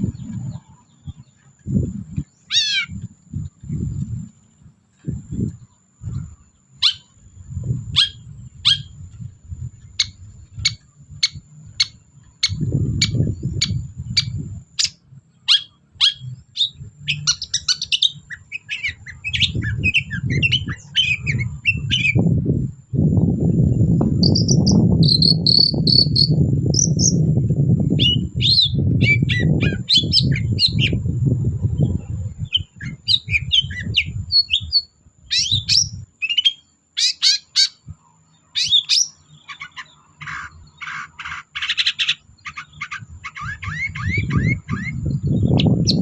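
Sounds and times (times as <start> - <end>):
low rumbling noise: 0.0 - 34.4.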